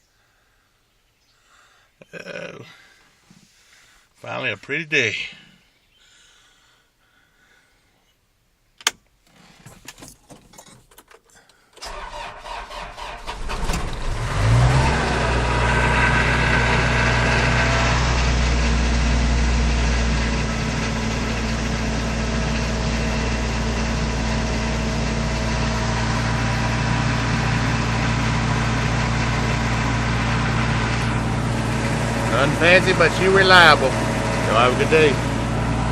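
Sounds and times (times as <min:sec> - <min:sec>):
engine revving and idling: 0:11.8 - 0:35.9.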